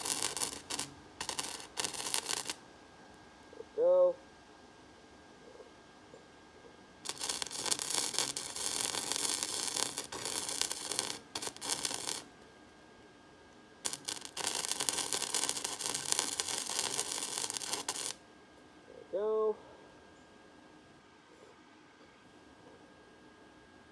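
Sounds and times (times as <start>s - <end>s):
electric welder crackling: 0.0s - 2.6s, 7.0s - 12.4s, 13.8s - 18.2s.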